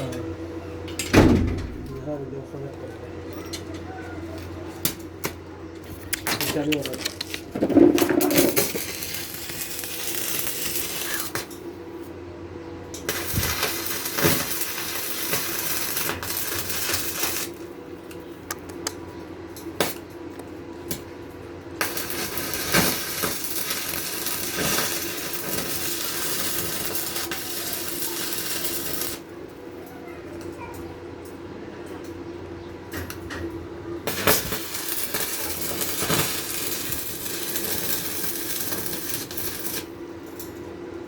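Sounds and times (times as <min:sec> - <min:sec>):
constant hum: 0:00.0 - 0:41.0
welding hiss bursts: 0:08.2 - 0:11.5, 0:13.1 - 0:17.6, 0:21.8 - 0:29.3, 0:34.1 - 0:39.9.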